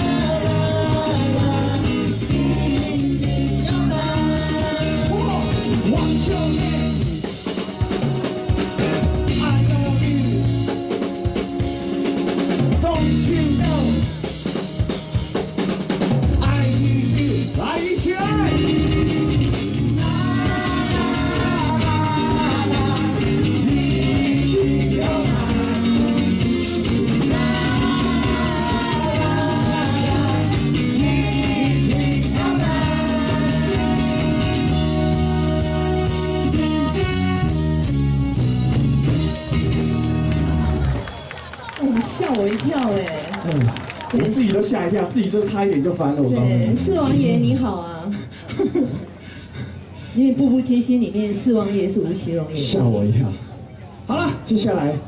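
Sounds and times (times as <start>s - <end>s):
person singing: 0.0s - 7.3s, 19.9s - 35.4s
drum kit beat: 0.0s - 41.3s.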